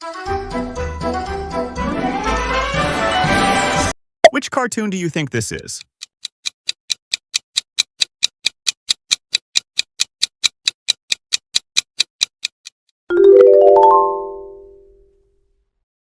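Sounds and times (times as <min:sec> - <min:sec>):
bright rising chime: 0:13.1 - 0:14.9.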